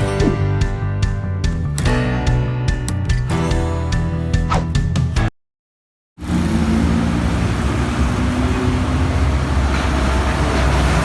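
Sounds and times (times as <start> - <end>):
music: 0.0 - 5.3
road traffic noise: 6.2 - 11.0.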